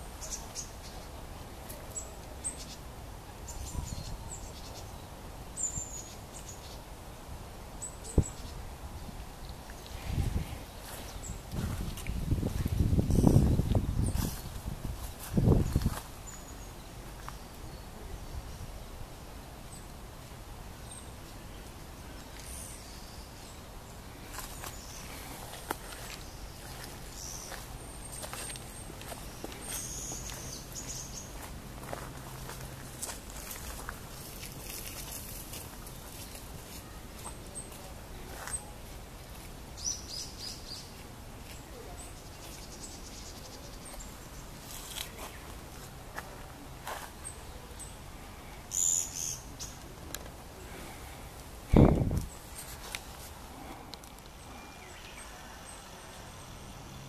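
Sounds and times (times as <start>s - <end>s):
faint high-pitched bird calls: 0.0s - 6.9s
low background hiss: 0.0s - 57.0s
songbirds chirping: 0.0s - 57.0s.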